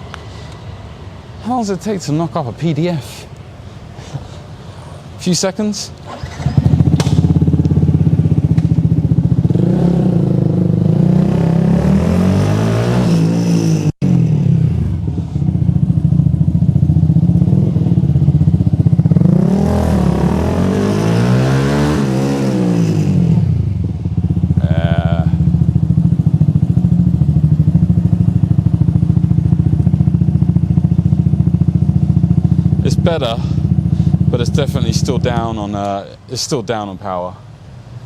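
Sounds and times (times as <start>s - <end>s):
motorcycle engine revving: 6.0s - 35.7s.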